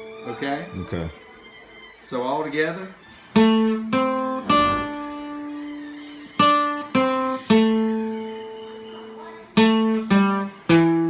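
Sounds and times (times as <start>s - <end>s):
guitar lead line: 3.4s - 11.0s.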